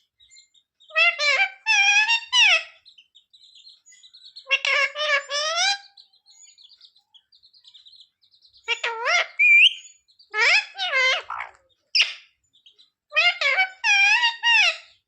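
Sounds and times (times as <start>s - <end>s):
parrot chirps: 0.4s - 3.1s, 3.8s - 6.6s, 8.6s - 12.4s, 13.1s - 15.0s
parrot voice-like phrases: 10.3s - 11.6s.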